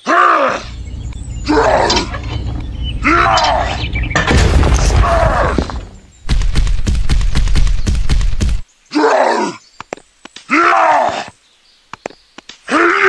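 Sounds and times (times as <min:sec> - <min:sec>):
strained groans of effort: 0:00.0 - 0:04.2
loud rough rumbling crackle: 0:00.8 - 0:08.6.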